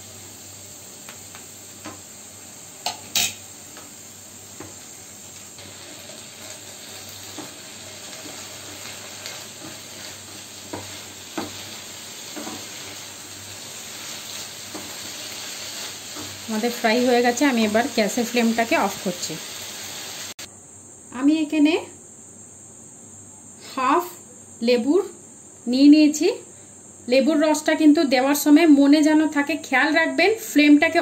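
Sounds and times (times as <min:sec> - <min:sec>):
vegetables sizzling in a pan: 0:00.0 - 0:20.5, 0:23.8 - 0:31.0.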